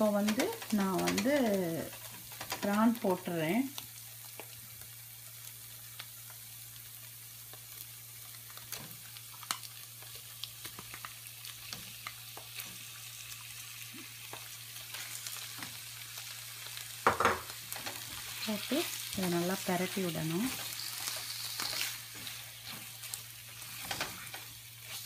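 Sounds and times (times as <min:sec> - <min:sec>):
paste sizzling in a pan: 0:00.0 - 0:25.0
spatula scraping a pan: 0:20.5 - 0:25.0.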